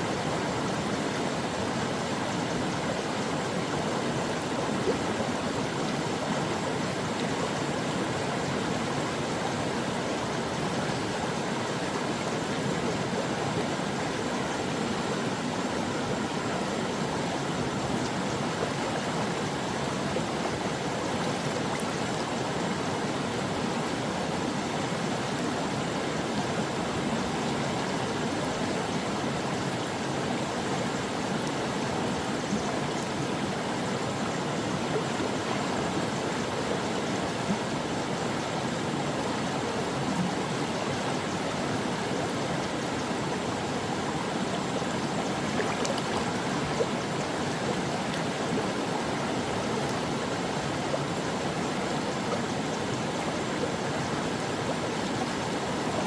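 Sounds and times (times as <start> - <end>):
stream babbling over rocks: 0.0 - 56.0.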